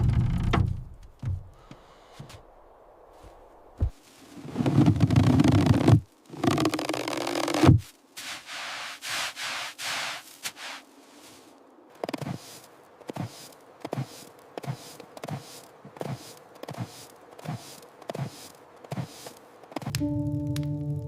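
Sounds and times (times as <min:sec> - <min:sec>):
short rustling strokes: 0:03.1 - 0:19.9.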